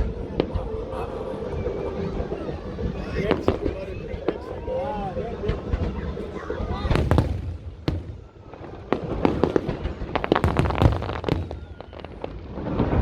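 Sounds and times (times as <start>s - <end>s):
fireworks bangs and crackles: 5.3s - 13.0s.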